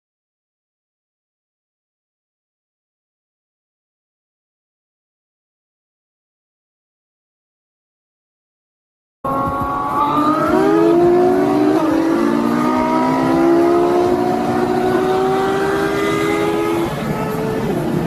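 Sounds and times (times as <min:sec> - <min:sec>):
car engine accelerating: 0:09.3 - 0:18.0.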